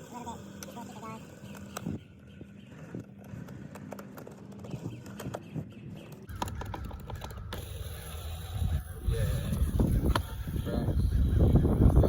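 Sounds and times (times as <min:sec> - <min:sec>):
skateboard wheel parts clicking: 0:03.0 - 0:08.9
wind rumble on microphone: 0:06.3 - 0:12.0.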